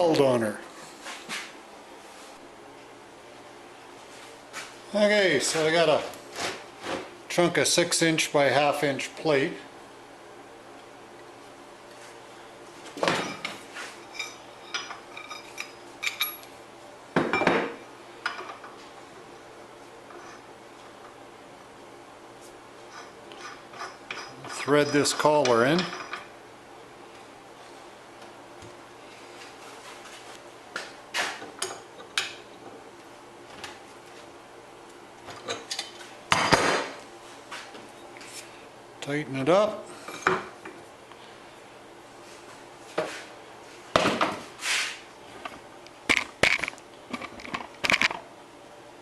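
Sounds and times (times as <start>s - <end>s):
steel parts clinking and clanking: 13.2s - 16.5s.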